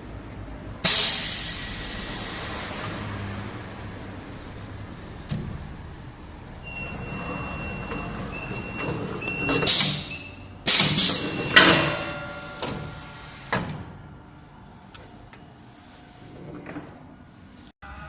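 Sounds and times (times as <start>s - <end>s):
machine high whine: 6.6s - 13.3s.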